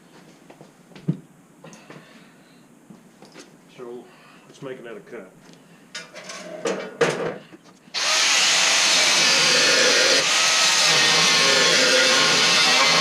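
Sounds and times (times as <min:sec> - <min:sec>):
power tool cutting steel: 0:08.0 - 0:13.0.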